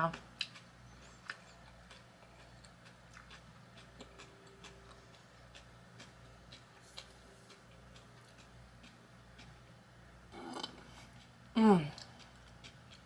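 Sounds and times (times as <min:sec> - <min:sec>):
eating clicks: 0:00.0 - 0:09.6
low steady hum: 0:00.0 - 0:13.0.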